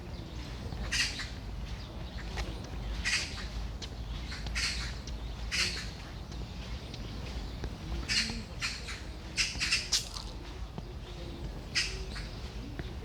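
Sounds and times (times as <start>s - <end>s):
birds giving harsh scratchy calls: 8.1s - 10.2s.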